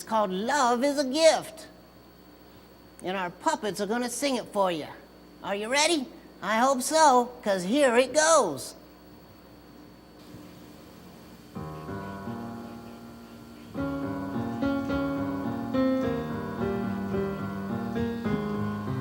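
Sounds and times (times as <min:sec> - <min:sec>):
gentle piano song: 0:11.6 - 0:19.0.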